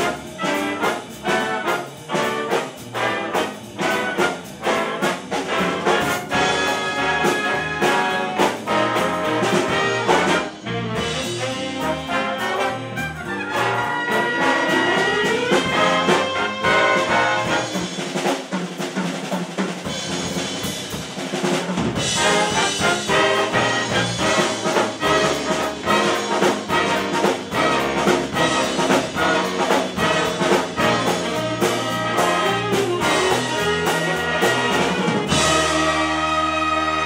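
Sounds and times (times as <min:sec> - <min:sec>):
jazz big band playing: 0:00.0 - 0:37.0.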